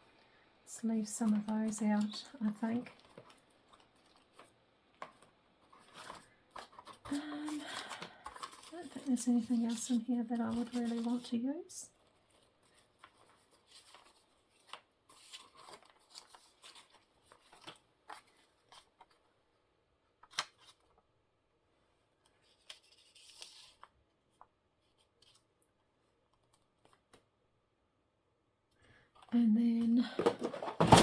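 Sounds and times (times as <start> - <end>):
paper rustling and crinkling: 1.0 - 19.3, 20.2 - 21.0, 22.3 - 25.5, 29.8 - 31.0.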